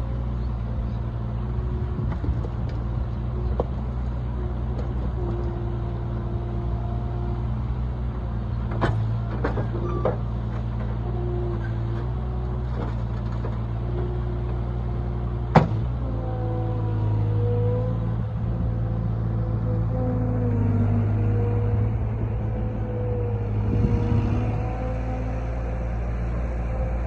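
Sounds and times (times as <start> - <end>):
loader engine running: 0.0 - 27.0.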